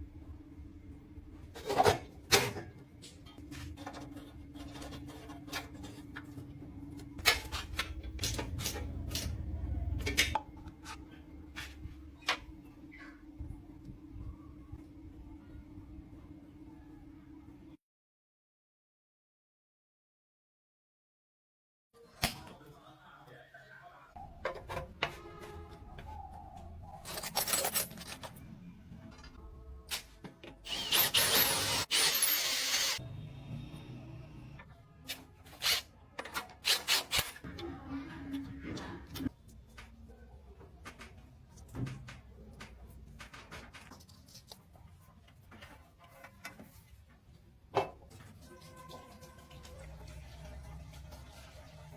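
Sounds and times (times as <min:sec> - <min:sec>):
power tool running: 0:30.6 - 0:33.0.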